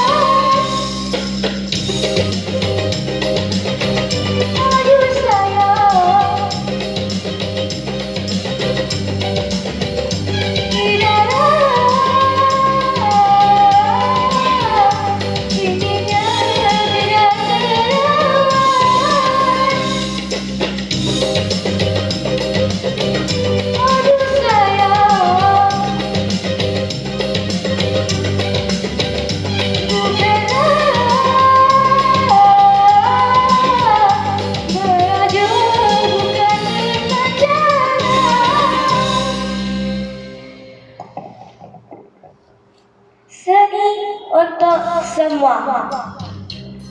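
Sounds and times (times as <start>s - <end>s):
person singing with vibrato: 0.0s - 1.2s, 29.9s - 39.7s
band backing track: 0.0s - 42.2s, 45.9s - 46.9s.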